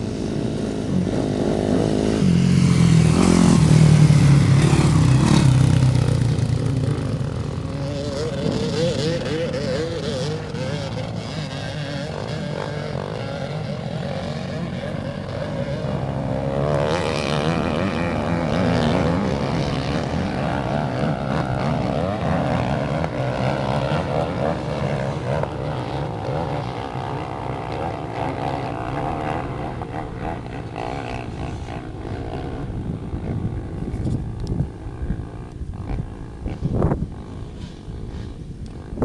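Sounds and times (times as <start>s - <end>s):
motocross bike engines revving: 0.0s - 39.0s.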